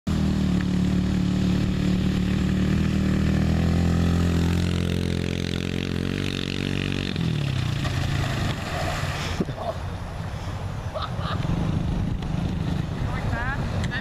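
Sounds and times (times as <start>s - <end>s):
motorbike engine running at low revs: 0.1s - 8.6s.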